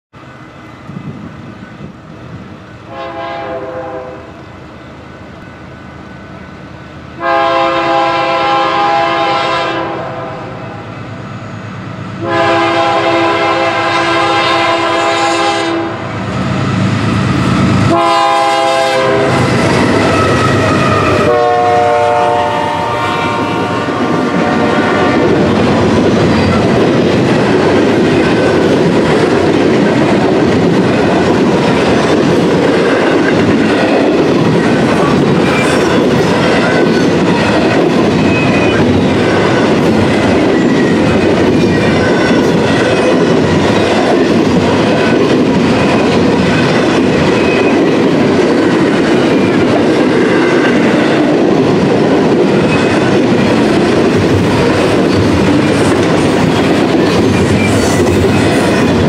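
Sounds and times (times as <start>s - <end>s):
train air horn blasts: 2.9s - 4.4s, 7.2s - 10.8s, 12.2s - 16.7s, 17.8s - 25.3s
diesel locomotive rumble: 10.6s - 50.2s
train cars clickety-clack: 11.8s - 59.0s.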